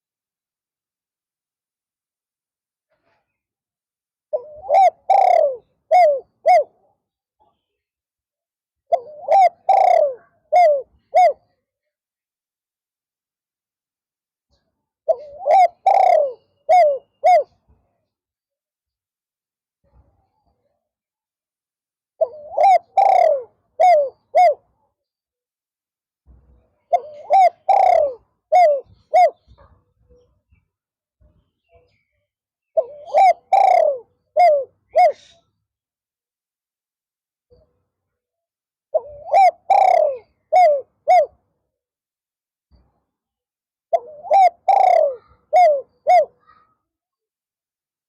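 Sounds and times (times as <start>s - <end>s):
dove cooing: 4.3s - 6.9s, 8.9s - 11.6s, 15.1s - 17.6s, 22.2s - 24.7s, 26.9s - 29.7s, 32.8s - 35.4s, 38.9s - 41.4s, 43.9s - 46.6s.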